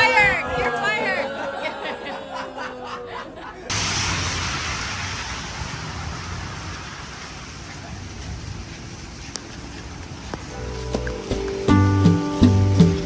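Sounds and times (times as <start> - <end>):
low rumble: 3.7 - 10.2
heavy rain falling: 3.7 - 13.0.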